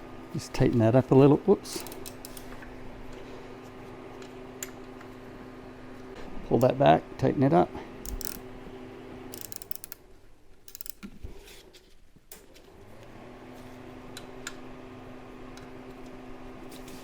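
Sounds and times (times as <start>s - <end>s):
ratchet wrench clicking: 8.0s - 8.4s, 9.3s - 10.0s, 10.7s - 11.0s.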